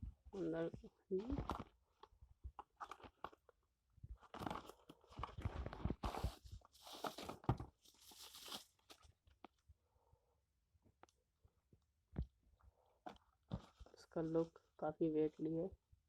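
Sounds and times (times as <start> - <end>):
packaging rustling and crinkling: 0.4 - 9.6, 13.1 - 14.1.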